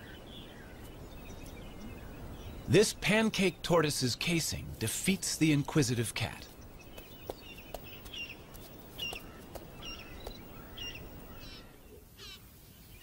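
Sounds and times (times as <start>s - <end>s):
bird trill: 6.5s - 12.4s
small bird chirping: 6.5s - 12.4s.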